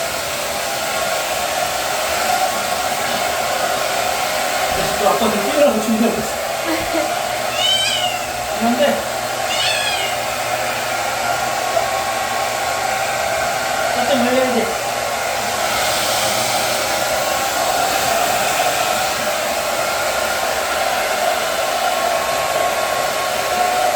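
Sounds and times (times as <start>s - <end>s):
hair dryer blowing: 0.0s - 23.9s
kitten meowing: 7.5s - 8.4s, 9.5s - 10.3s.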